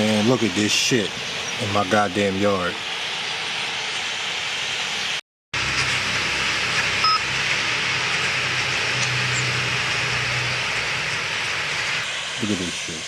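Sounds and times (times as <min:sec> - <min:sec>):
huge flock of birds: 0:00.0 - 0:13.0
short electronic beep: 0:07.0 - 0:07.2.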